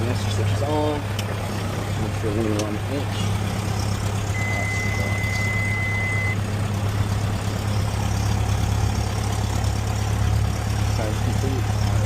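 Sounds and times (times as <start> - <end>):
aircraft engine idling: 0.0 - 12.0
steady high beep: 4.3 - 6.4.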